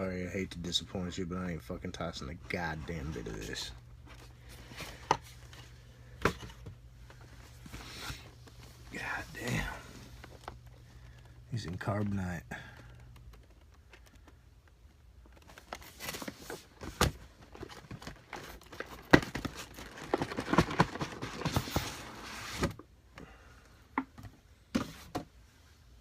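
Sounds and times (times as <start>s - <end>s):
plastic packaging crinkling: 15.2s - 21.8s.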